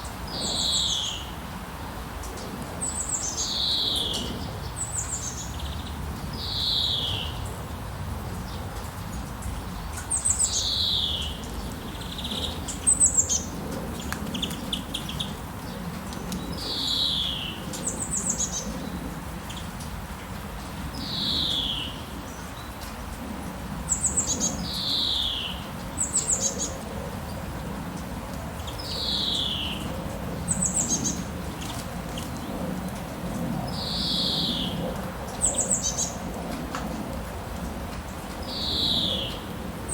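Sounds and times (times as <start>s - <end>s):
birds singing whistled notes: 2.8s - 7.5s, 16.4s - 19.7s, 21.0s - 22.4s, 23.9s - 26.8s, 28.6s - 29.9s, 33.7s - 34.8s, 38.4s - 39.5s.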